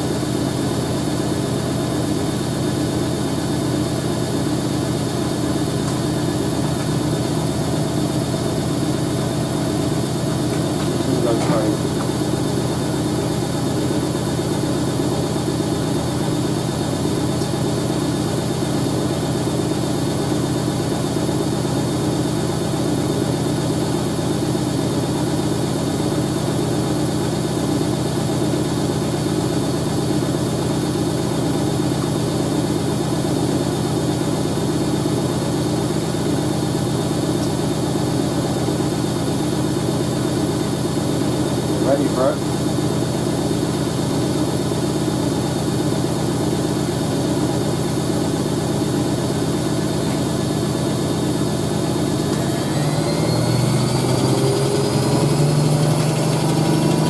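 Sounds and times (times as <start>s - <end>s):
washing machine spinning: 0.0s - 57.0s.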